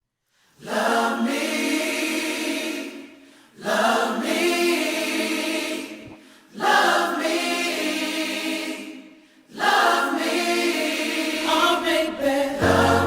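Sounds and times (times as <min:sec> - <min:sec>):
choir voices holding chords: 0:00.6 - 0:13.0.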